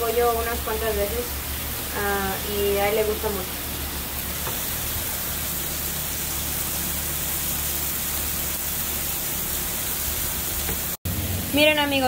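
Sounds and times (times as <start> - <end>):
chicken sizzling on griddle: 0.0 - 12.0.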